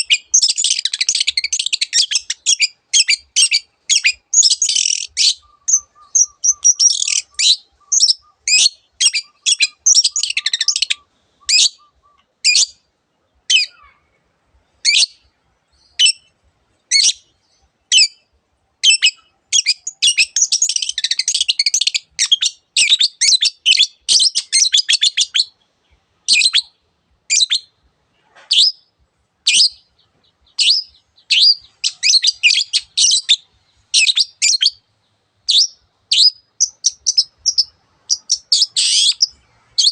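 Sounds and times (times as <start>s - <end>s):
bird fast chattering: 0.0s - 11.9s, 35.5s - 39.9s
bird sharp high calls: 0.0s - 12.9s, 13.5s - 14.2s, 14.8s - 25.6s, 26.3s - 28.9s, 29.5s - 39.9s.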